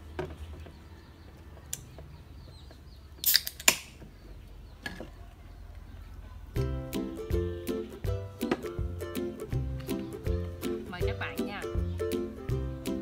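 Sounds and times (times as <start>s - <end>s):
beer can cracking open: 3.2s - 4.0s
faint chicken clucking: 4.1s - 6.8s.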